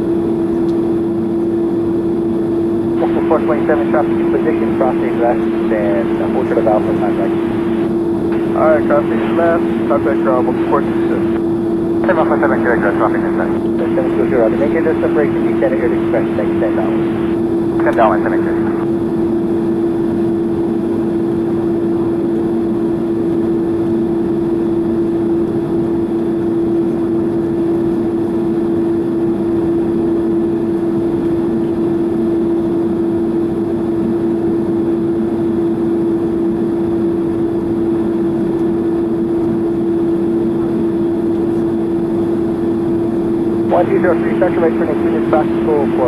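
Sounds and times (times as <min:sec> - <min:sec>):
jet engines idling hum: 0:03.0 - 0:18.8, 0:43.7 - 0:46.0.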